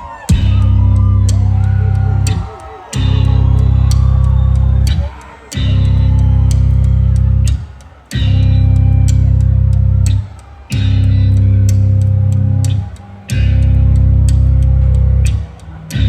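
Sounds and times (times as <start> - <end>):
drum and cymbal hits: 0.0 - 16.0
bass guitar low notes: 0.3 - 5.0, 5.6 - 7.6, 8.2 - 16.0.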